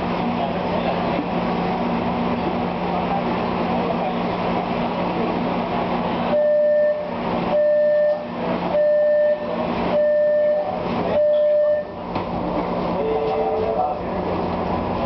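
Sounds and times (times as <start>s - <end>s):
train carriage rumble: 0.0s - 7.5s, 10.6s - 15.0s
electronic door warning beeps: 6.3s - 12.0s.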